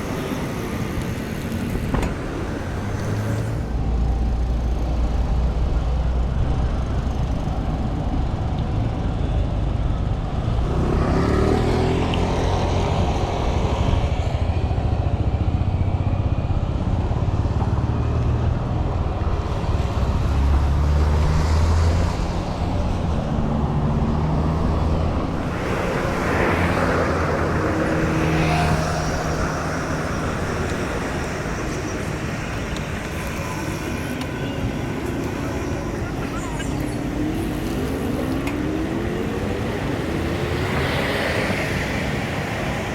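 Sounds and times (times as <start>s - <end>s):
rush of traffic: 0.0s - 42.9s
vehicle engines running: 0.0s - 42.9s
engine accelerating: 10.3s - 42.6s.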